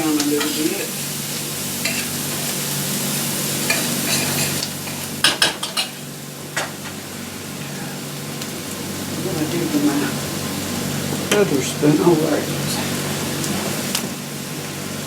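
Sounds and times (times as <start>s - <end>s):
meat and vegetables sizzling: 0.0s - 15.0s
spoon clinking and scraping pan: 1.8s - 2.4s, 3.7s - 6.0s.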